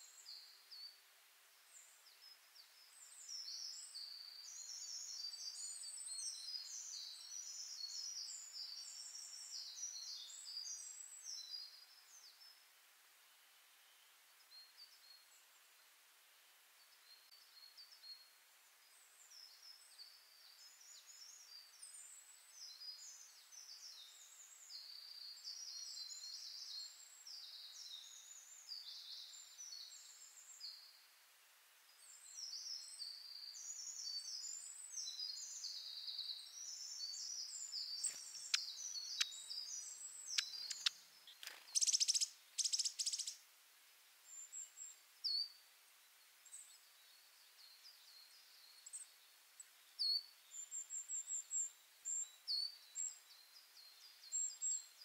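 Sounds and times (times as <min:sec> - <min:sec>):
birds chirping and singing: 0:36.8 - 0:43.4
harsh bird calls: 0:38.0 - 0:43.4
sharp clicks: 0:40.4 - 0:41.7.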